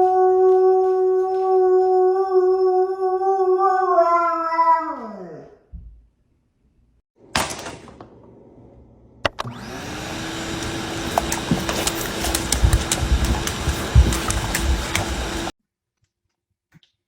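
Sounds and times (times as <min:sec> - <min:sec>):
small motor humming: 0:09.4 - 0:15.5.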